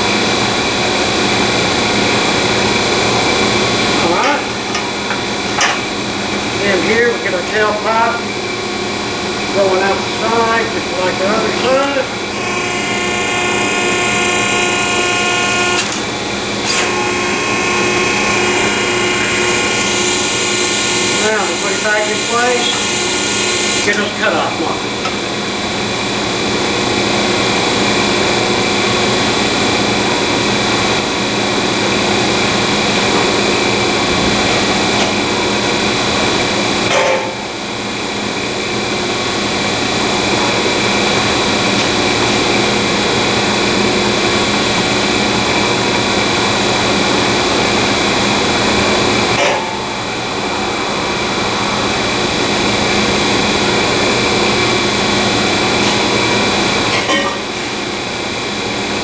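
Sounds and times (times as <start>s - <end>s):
power tool cutting steel tubing: 12.3s - 24.1s.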